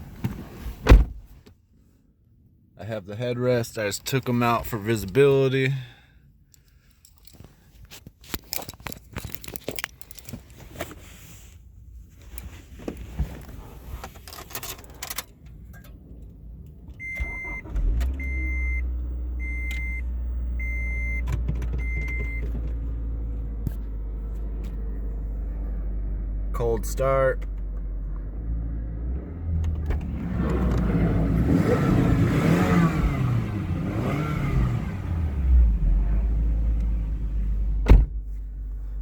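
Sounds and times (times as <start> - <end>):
keys jangling: 6.6 - 7.5, 8.4 - 10.6
car engine starting and idling: 11.0 - 39.0.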